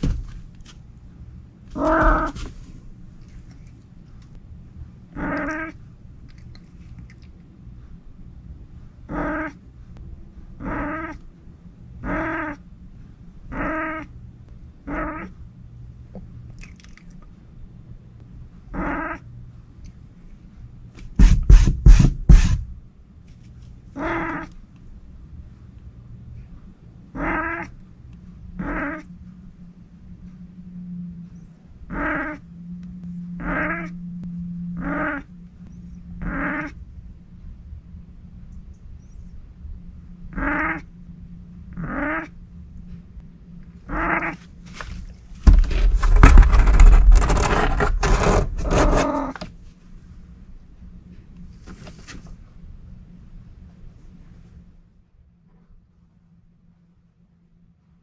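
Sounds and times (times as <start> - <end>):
steady low hum: 0.0 - 58.0
steady low rumble: 0.0 - 58.0
cat trilling: 1.8 - 2.4, 5.1 - 5.8, 9.1 - 9.6, 10.6 - 11.2, 12.0 - 12.6, 13.5 - 14.1, 14.9 - 15.3, 18.8 - 19.2, 24.0 - 24.5, 27.2 - 27.7, 28.6 - 29.1, 31.9 - 32.4, 33.4 - 33.9, 34.8 - 35.3, 36.2 - 36.8, 40.3 - 40.9, 41.8 - 42.3, 43.9 - 44.4.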